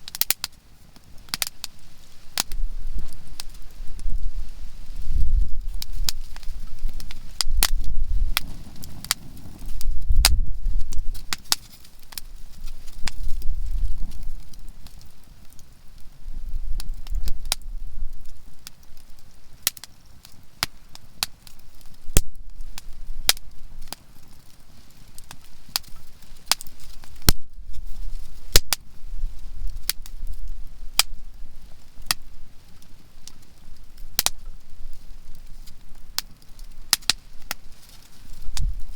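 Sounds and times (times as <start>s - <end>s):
firewood crackling and popping: 0.0s - 38.9s.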